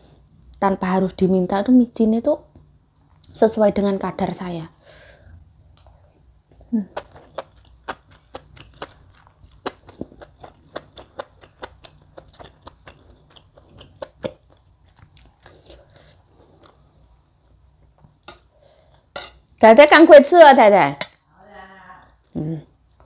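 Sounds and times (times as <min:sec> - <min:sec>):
person chewing wet mouth clicks: 0:07.0 - 0:17.3.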